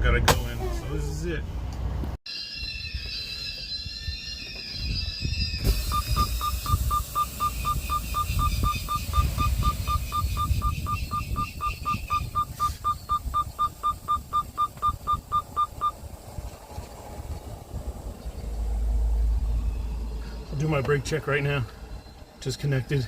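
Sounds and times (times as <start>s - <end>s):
low engine rumble: 5.6s - 23.0s
rapid electronic beeping: 5.7s - 16.0s.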